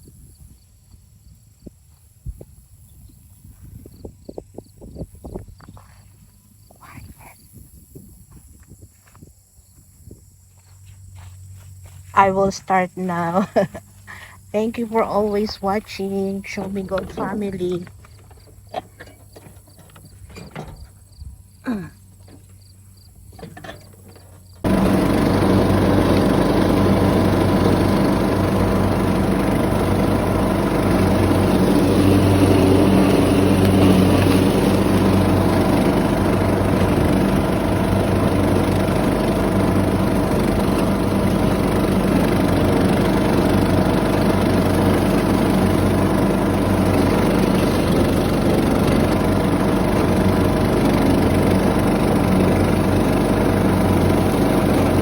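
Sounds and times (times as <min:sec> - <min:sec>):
lawn mower engine running: 0:11.6 - 0:55.0.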